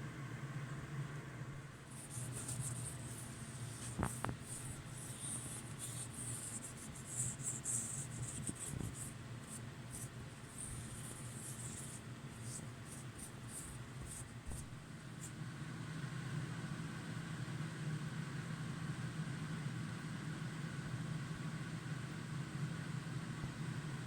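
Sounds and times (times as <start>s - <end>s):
steady low hum: 0.0s - 24.0s
scratchy rubbing: 1.9s - 15.3s.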